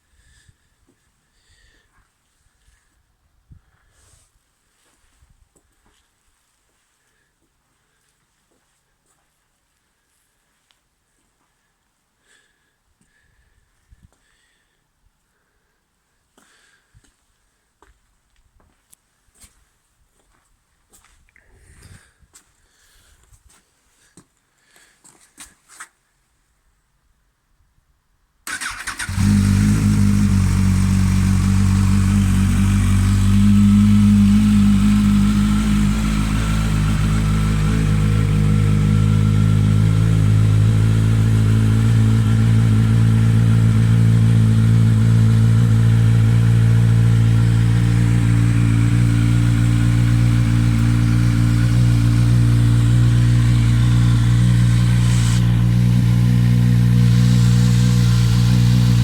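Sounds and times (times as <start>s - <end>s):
motorcycle engine idling: 28.5s - 59.0s.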